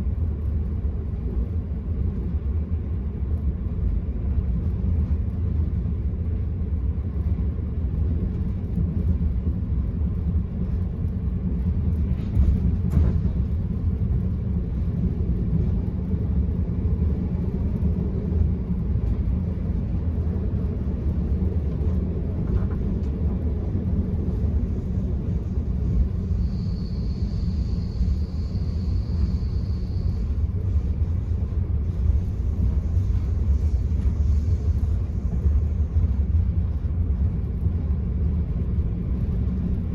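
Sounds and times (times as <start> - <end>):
train rumbling inside coach: 0.0 - 39.9
thin high whine: 25.8 - 30.7.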